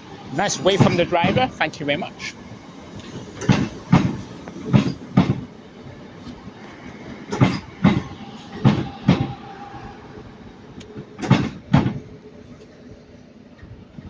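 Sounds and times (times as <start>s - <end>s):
train wheels clattering over rail joints: 0.4s - 1.6s, 2.2s - 5.6s, 6.2s - 9.4s, 10.9s - 12.1s.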